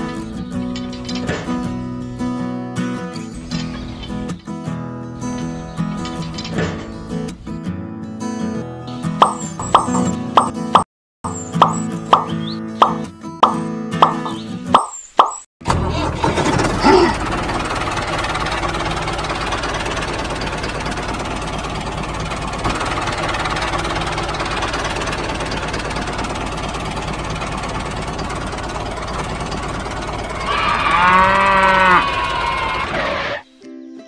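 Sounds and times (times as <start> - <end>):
tractor engine running: 0.0 - 14.9, 15.6 - 33.4
cow mooing: 30.3 - 33.4.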